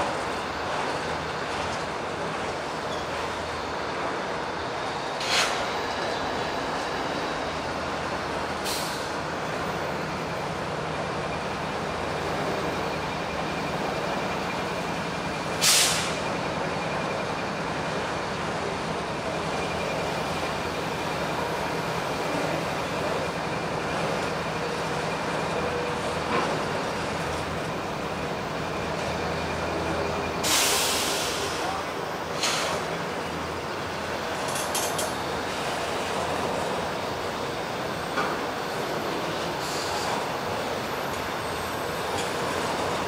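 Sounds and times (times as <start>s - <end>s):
train rumbling: 0.0s - 43.0s
air hissing: 15.6s - 16.2s.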